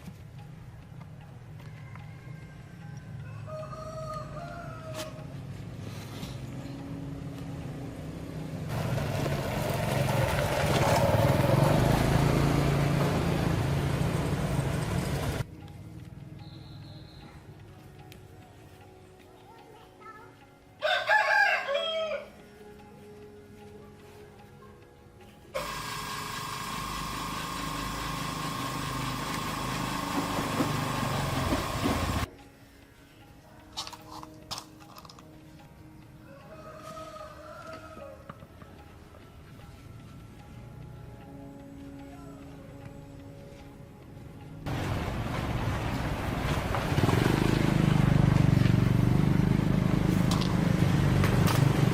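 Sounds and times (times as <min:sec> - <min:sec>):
small petrol engine running: 0:07.6 - 0:15.4, 0:25.6 - 0:32.3, 0:44.7 - 0:51.9
small motor whining: 0:25.6 - 0:32.3.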